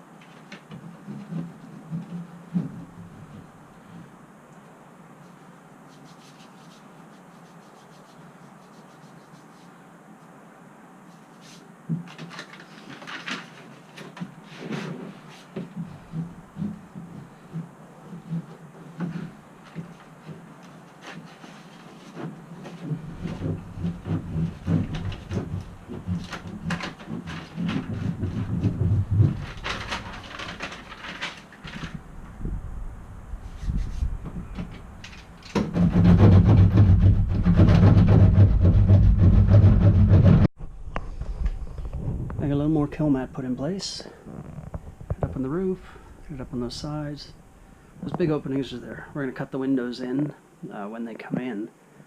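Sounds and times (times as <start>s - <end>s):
low mechanical hum with rattling: 8.5s - 51.9s
clicks knocks and scraping: 11.9s - 32.0s, 33.6s - 40.5s.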